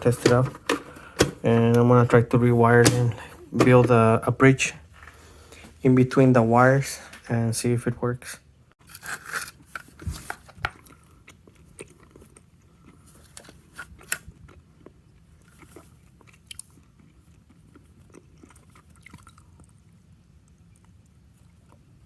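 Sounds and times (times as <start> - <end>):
clicks of handling wiring and plastic: 0.0 - 2.1, 2.8 - 4.0.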